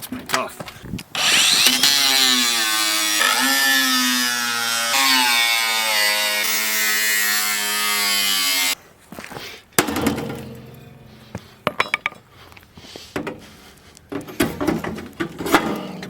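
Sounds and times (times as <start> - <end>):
power tool cutting steel: 1.2 - 8.8.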